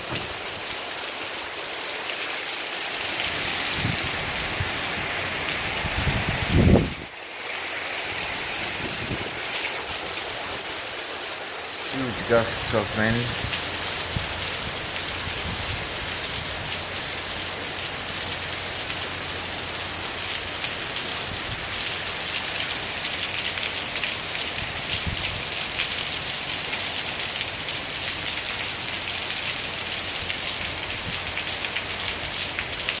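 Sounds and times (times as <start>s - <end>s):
heavy rain: 0.0s - 33.0s
gusty wind: 3.2s - 7.1s, 8.1s - 10.6s, 12.5s - 17.4s.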